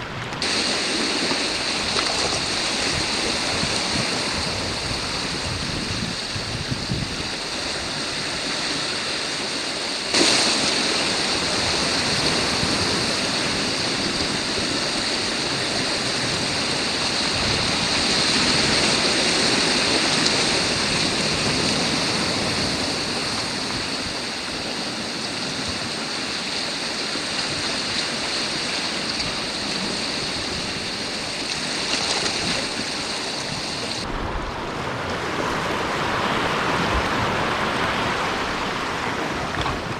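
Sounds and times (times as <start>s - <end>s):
surf washing over rocks: 0.0s - 39.9s.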